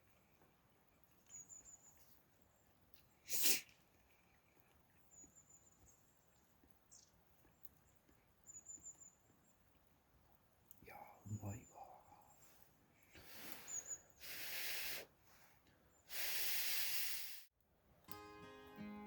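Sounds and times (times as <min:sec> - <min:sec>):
faint high-pitched chirps: 0:00.9 - 0:03.4, 0:04.0 - 0:09.6
sharp burst of breath: 0:03.3 - 0:03.6, 0:13.2 - 0:15.2, 0:16.1 - 0:17.5.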